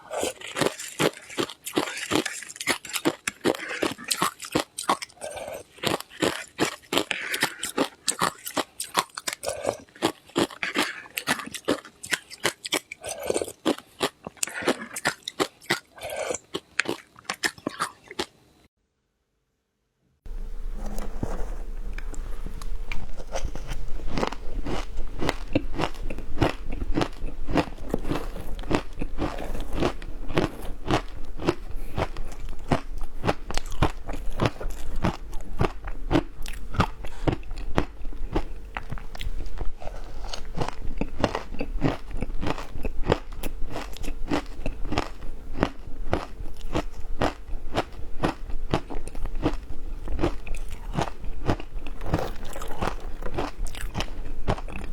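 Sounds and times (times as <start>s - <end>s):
chewing: 0.0s - 18.3s, 22.0s - 54.9s
ice crunching: 21.1s - 32.5s.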